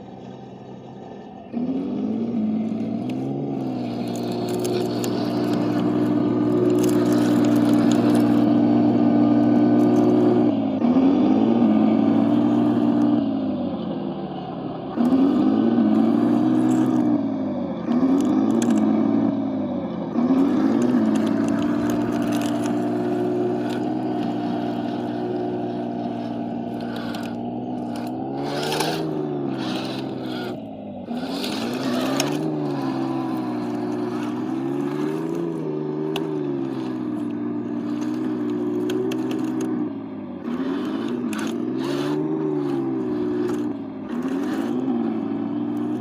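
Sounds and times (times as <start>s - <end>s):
tractor engine running: 0.0s - 46.0s
sharp clicks and scrapes: 0.9s - 10.5s, 15.0s - 17.1s, 17.9s - 19.0s, 20.2s - 46.0s.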